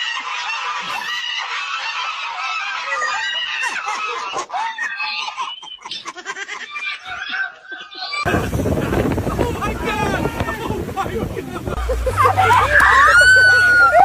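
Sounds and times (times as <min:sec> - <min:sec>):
wind noise on microphone: 0:08.3 - 0:14.0
geese honking and cackling: 0:11.5 - 0:14.0.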